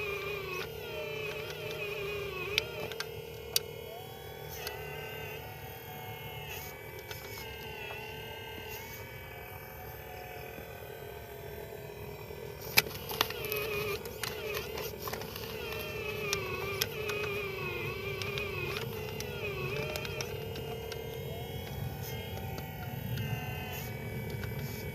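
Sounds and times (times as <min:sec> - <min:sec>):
sharp clicks: 0:00.0 - 0:05.4, 0:12.6 - 0:24.9
small electric motors whining: 0:00.0 - 0:24.9.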